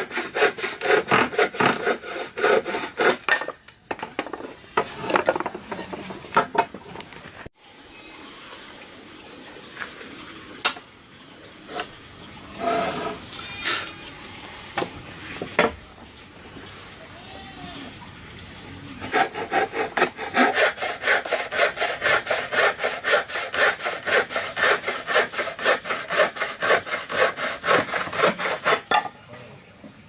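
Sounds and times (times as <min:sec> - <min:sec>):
saw cutting through wood: 0:00.0 - 0:03.3, 0:19.0 - 0:28.9.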